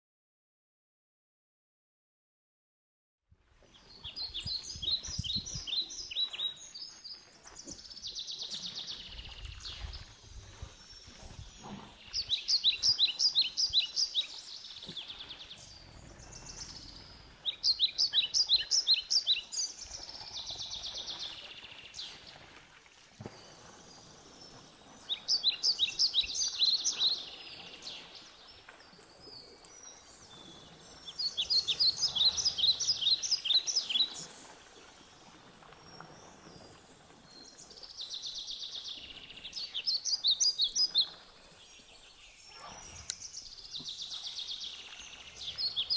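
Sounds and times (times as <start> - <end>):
bird chirping song: 3.7 - 22.5, 23.2 - 34.5, 35.9 - 45.9.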